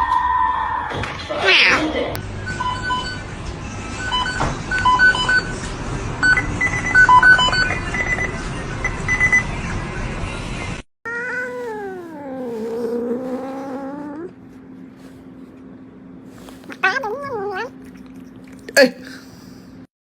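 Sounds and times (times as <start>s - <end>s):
cat yowling meow: 11.1s - 14.3s, 16.7s - 18.0s.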